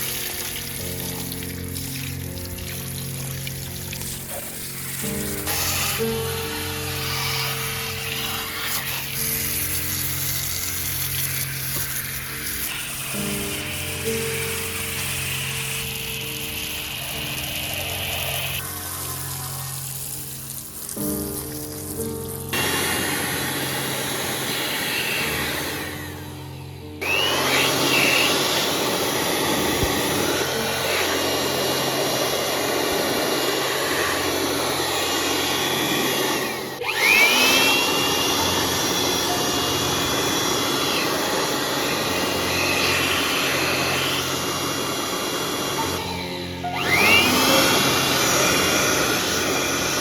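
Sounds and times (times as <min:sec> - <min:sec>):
blower motor whining: 0:00.0 - 0:21.3, 0:21.9 - 0:50.0
electric air blower hissing: 0:00.0 - 0:50.0.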